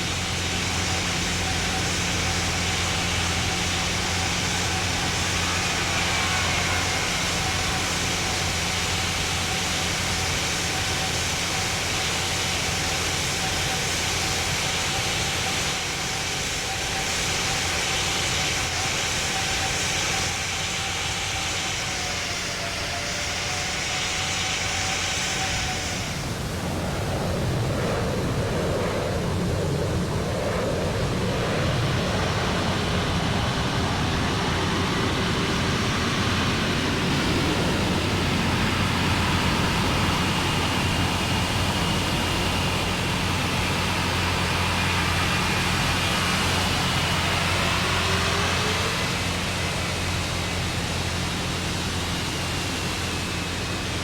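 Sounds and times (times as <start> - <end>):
jet engines rushing: 0.0 - 54.0
faint whining tones: 28.9 - 54.0.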